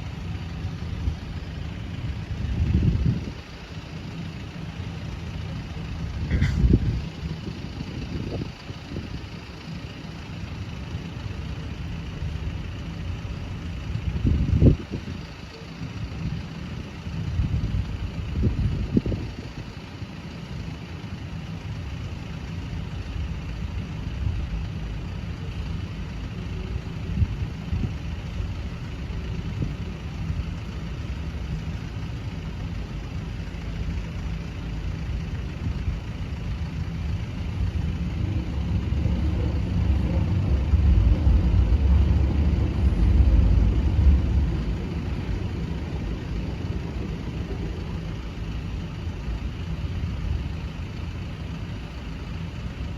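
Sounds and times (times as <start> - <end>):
vehicle engines running: 0.0 - 52.9
heavy vehicle passing: 37.6 - 48.8.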